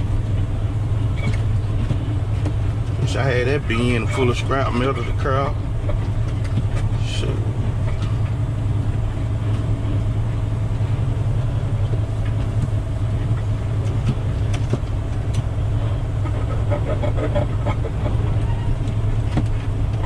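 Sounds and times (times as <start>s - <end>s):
diesel truck engine droning: 0.0s - 20.0s
truck knocks and rattles: 0.0s - 20.0s.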